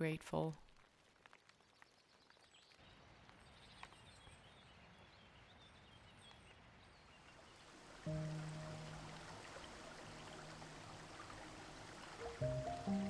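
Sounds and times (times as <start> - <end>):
soft outdoor hiss: 6.2 - 13.0.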